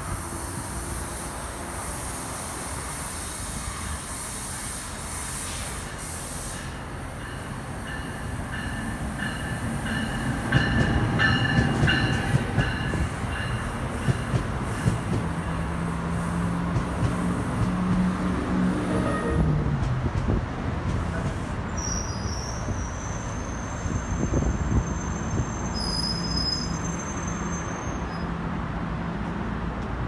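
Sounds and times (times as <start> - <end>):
train rumbling: 0.0 - 30.0
high wheel squeals: 21.2 - 28.4.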